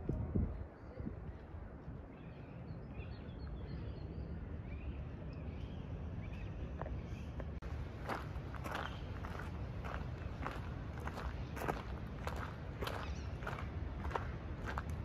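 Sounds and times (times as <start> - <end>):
small birds chirping: 2.0 - 15.0
low outdoor rumble: 3.6 - 15.0.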